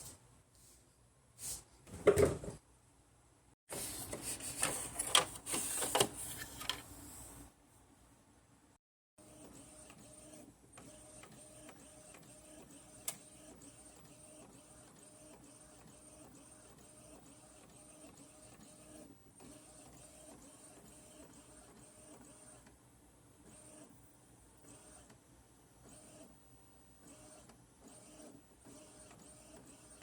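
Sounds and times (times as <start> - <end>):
faint repeating machine sound: 9.2 - 30.0.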